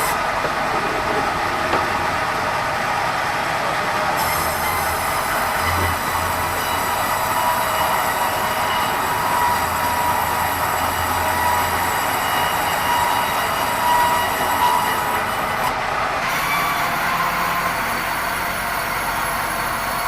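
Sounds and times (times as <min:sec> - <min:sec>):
band saw cutting timber: 0:00.0 - 0:20.0.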